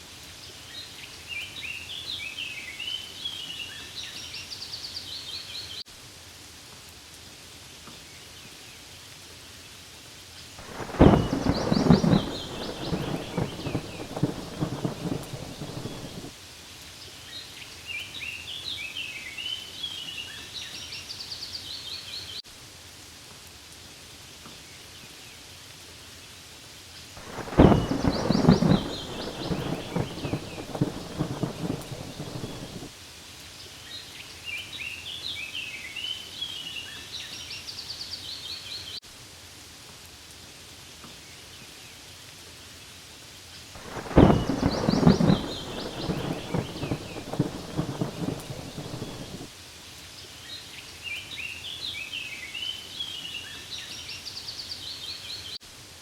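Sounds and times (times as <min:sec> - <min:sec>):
rain falling on leaves: 0:00.0 - 0:56.0
thunder rumbling: 0:10.6 - 0:16.3, 0:27.2 - 0:32.9, 0:43.8 - 0:49.5.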